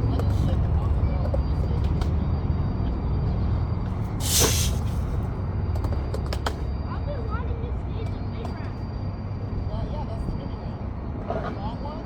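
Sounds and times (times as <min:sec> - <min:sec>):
loud hiss: 0:04.2 - 0:04.9.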